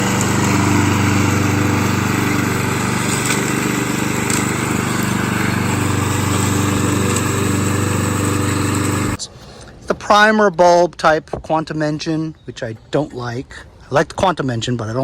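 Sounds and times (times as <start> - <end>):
lawn mower engine running: 0.0 - 9.2.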